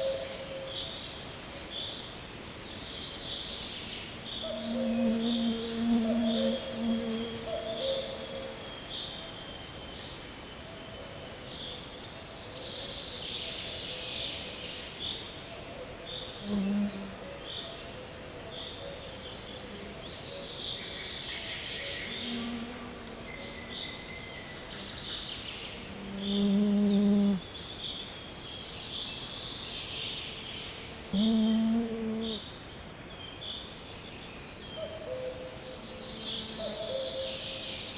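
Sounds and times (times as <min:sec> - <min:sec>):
steady outdoor hiss: 0:00.0 - 0:37.9
birds twittering: 0:04.1 - 0:08.6
low steady tone: 0:04.5 - 0:08.7.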